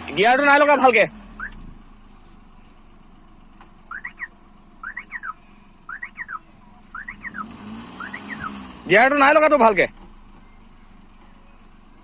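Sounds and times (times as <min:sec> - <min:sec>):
car engine idling faintly: 0:00.0 - 0:12.0
reversing alarm chirping: 0:01.4 - 0:01.6, 0:03.9 - 0:08.6.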